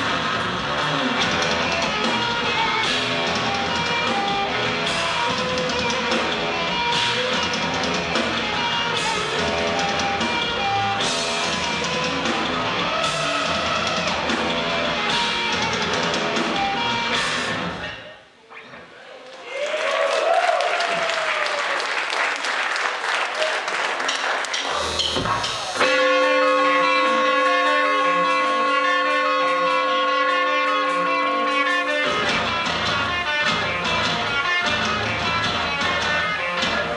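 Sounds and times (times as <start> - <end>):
drum kit: 0.0 - 18.1, 23.8 - 36.9
electric guitar: 0.0 - 18.9, 24.6 - 36.9
sustained buzzy instrument note: 25.8 - 32.5.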